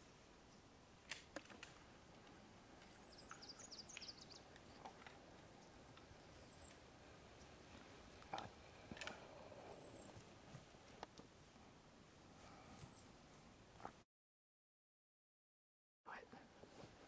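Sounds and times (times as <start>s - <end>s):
songbird chirps: 0.0s - 0.8s, 2.0s - 11.1s, 12.4s - 13.2s
soft clicks: 1.1s - 5.2s.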